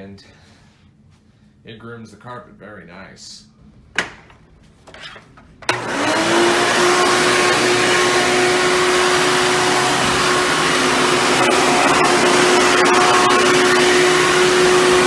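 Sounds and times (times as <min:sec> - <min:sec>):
vacuum cleaner motor whining: 0:05.6 - 0:15.0.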